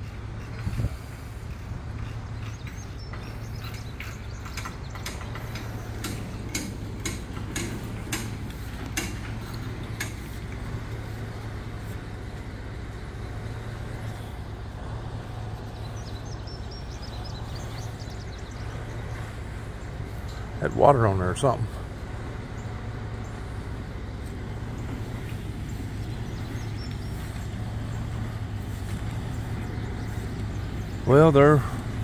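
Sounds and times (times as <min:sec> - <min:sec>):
vehicle engine idling: 0:00.0 - 0:32.0
sharp ticks: 0:01.5 - 0:10.7.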